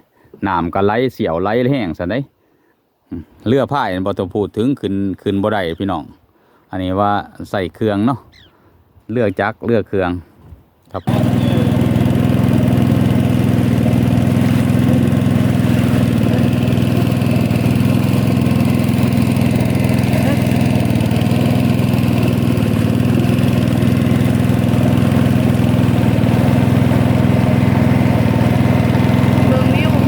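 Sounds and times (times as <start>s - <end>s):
motorboat engine running: 11.0s - 30.0s.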